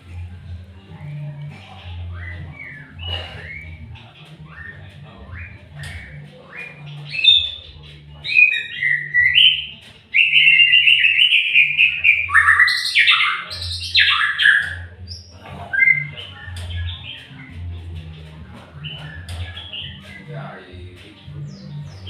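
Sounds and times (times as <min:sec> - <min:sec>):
bird singing whistled phrases: 0:02.1 - 0:17.5.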